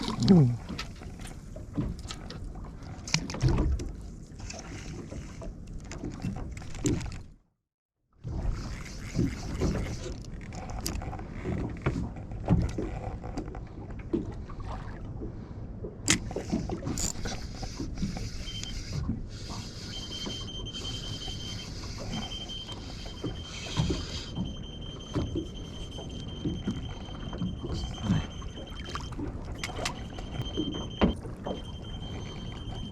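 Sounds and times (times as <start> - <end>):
water slapping against boat: 0.0 - 7.4.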